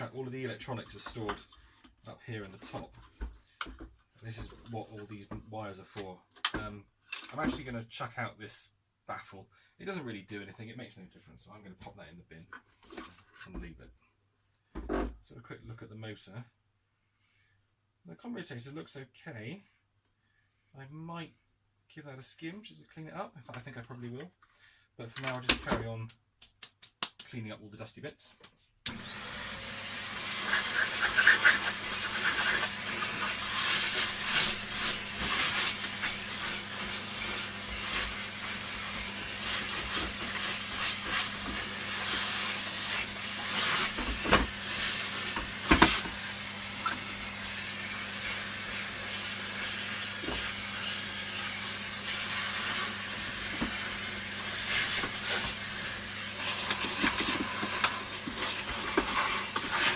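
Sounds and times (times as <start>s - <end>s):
air blower hissing with whine: 28.9s - 59.9s.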